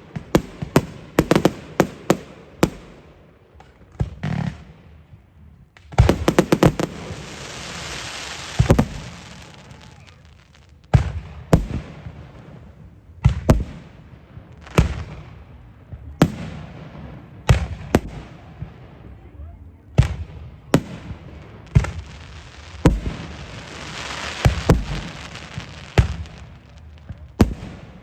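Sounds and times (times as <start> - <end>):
fireworks bangs: 0.0 - 5.2, 5.9 - 28.0
fireworks hiss: 6.0 - 10.7, 21.6 - 26.9.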